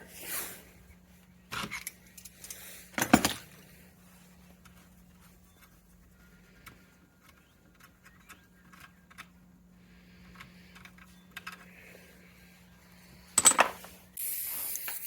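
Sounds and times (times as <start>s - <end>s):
metal tools clinking: 1.6s - 3.6s, 13.2s - 13.9s.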